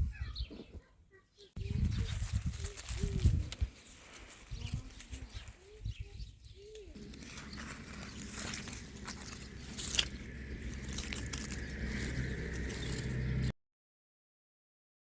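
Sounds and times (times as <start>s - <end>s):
bird cooing: 4.5s - 13.5s
low rumble: 7.0s - 13.5s.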